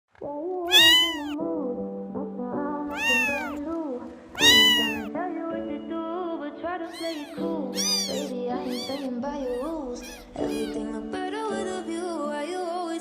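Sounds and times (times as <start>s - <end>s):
kitten meowing: 0.7s - 1.4s, 2.9s - 3.6s, 4.4s - 5.1s, 6.9s - 10.9s.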